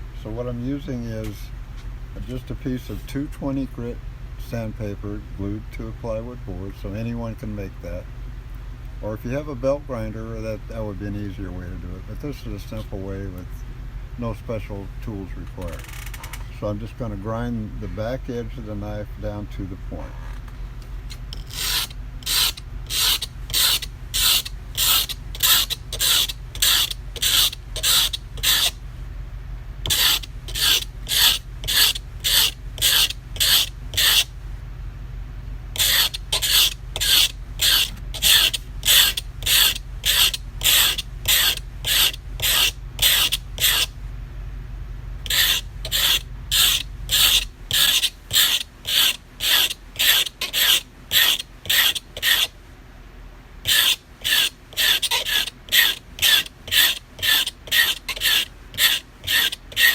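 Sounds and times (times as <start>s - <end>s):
knife blade rasping on sandpaper: 21.3s - 28.8s, 29.8s - 34.3s, 35.8s - 43.9s, 45.2s - 52.5s, 53.6s - 59.9s.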